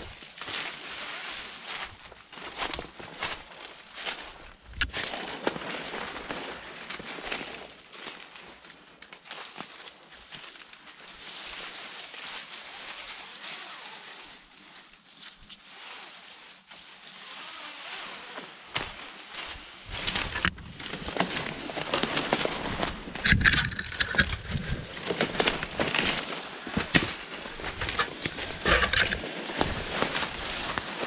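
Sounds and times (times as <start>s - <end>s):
undergrowth rustling and crackling: 0.0s - 31.0s
twigs snapping underfoot: 2.4s - 6.4s, 18.7s - 31.0s.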